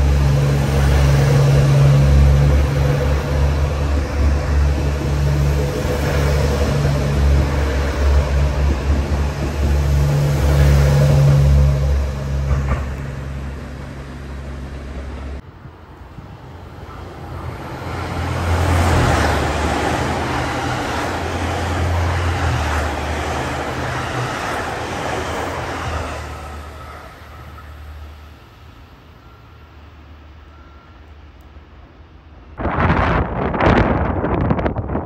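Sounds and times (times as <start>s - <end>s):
diesel engine drone: 0.0s - 32.6s
wheel and rail noise: 0.0s - 32.6s.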